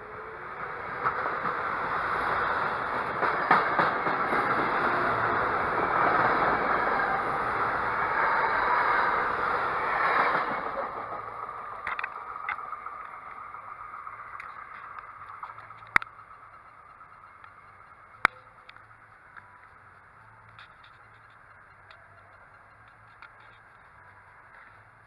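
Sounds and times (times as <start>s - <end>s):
train rumbling on rails: 0.0s - 25.0s
sharp clicks: 11.7s - 25.0s.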